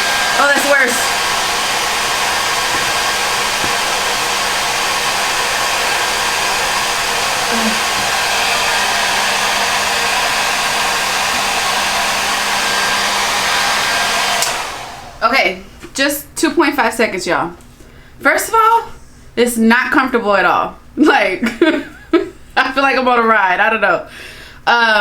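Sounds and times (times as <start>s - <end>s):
blow dryer rushing air: 0.0s - 15.6s.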